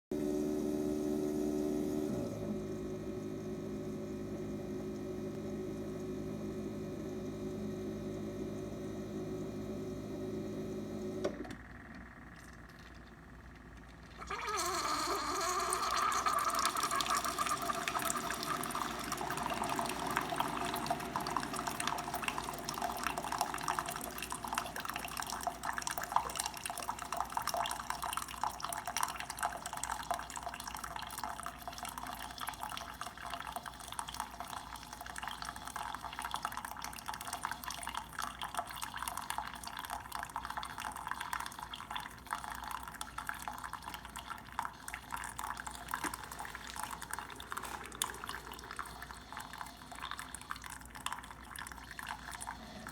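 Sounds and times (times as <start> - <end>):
coffee pouring into a cup: 12.3 - 52.9.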